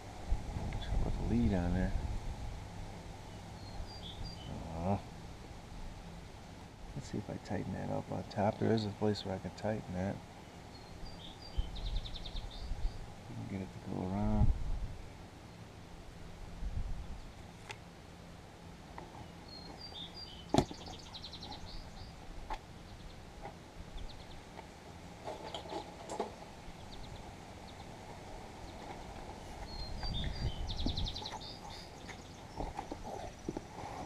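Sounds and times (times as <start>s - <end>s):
outdoor background noise: 0.0s - 34.0s
songbird trilling: 19.2s - 22.2s, 29.6s - 33.5s.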